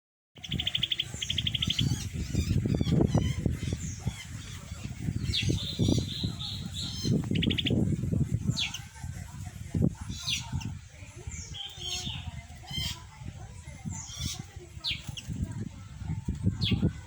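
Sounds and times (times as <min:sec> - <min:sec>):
high bird chirps: 0:00.4 - 0:07.8
songbird trills: 0:00.4 - 0:07.8.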